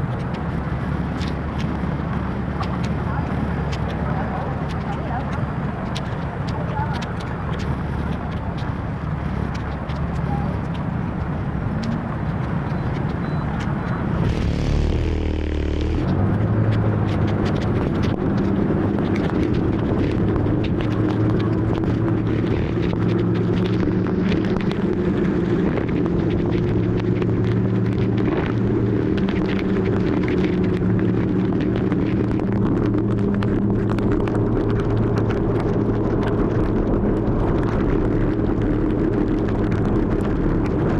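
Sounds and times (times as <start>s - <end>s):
road and traffic noise: 0.0s - 40.9s
motor scooter engine humming: 13.0s - 28.9s.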